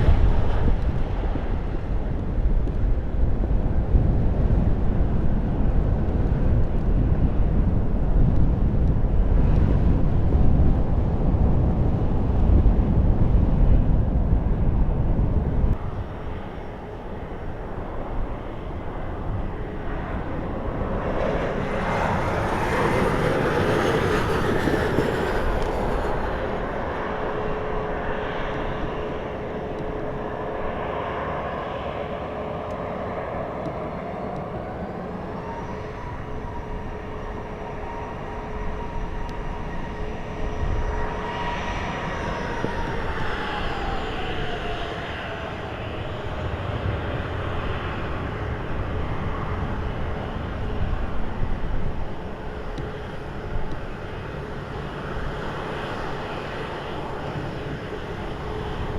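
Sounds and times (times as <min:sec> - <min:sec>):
jet aircraft passing: 0:00.0 - 0:58.9
steady engine whine: 0:00.0 - 0:58.9
wind buffeting microphone: 0:00.0 - 0:58.9.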